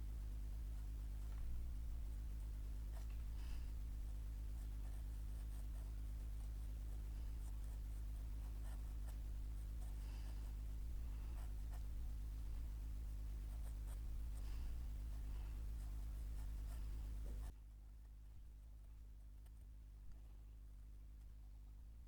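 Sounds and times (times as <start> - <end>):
steady low hum: 0.0 - 22.0
pen scratching on paper: 0.6 - 17.5.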